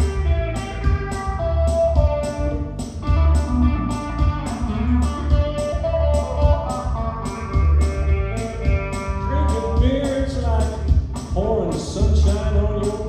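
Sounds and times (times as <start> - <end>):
lead guitar melody: 0.0 - 10.2
bass: 0.0 - 13.0
drum beat: 0.0 - 13.0.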